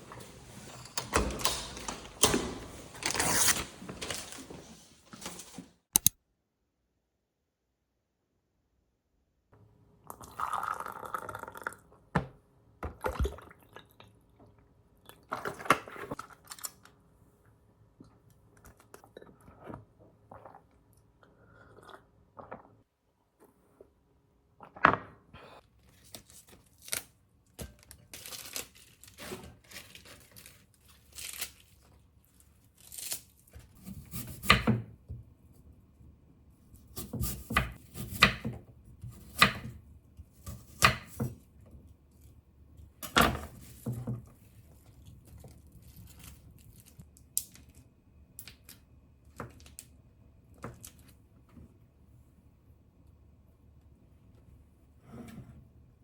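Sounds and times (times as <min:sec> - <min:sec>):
food rustling and crunching: 0:25.8 - 0:34.2.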